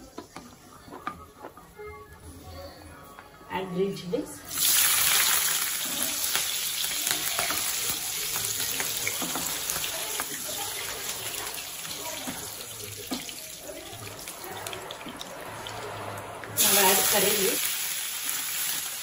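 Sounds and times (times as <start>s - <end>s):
wooden spatula taps and scrapes: 0.0s - 1.6s, 7.3s - 10.5s
chillies sizzling in hot oil: 4.5s - 19.0s.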